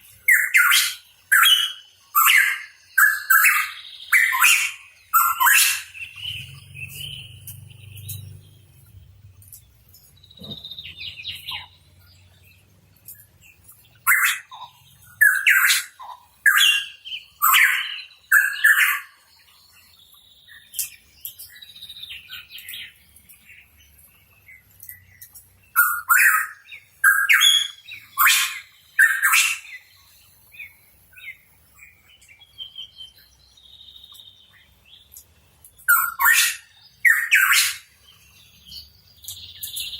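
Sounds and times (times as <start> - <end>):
bird calling in loud chirps: 0.3 - 8.2, 25.8 - 29.8, 35.9 - 37.9.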